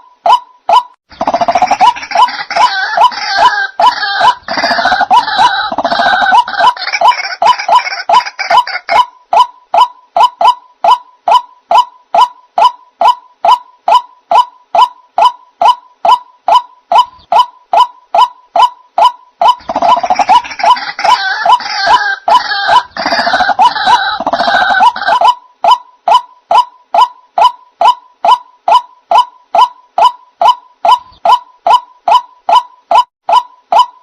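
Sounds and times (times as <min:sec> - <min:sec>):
waterhen calls: 0:00.0 - 0:34.0
harsh croaking chorus: 0:01.1 - 0:09.0, 0:19.5 - 0:25.4.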